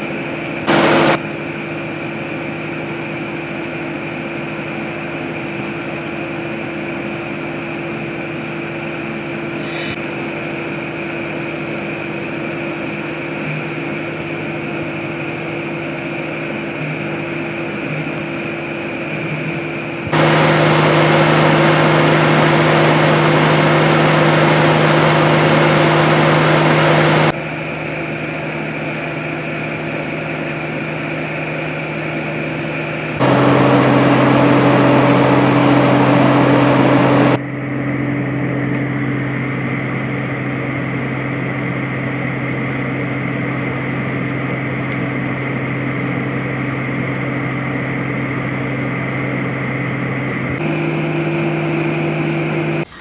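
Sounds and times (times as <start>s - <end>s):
hiss: 0.7s - 1.2s, 9.6s - 10.0s, 20.1s - 27.3s
workshop machinery hum: 0.7s - 1.2s, 20.1s - 27.4s, 33.2s - 44.9s, 47.9s - 53.0s.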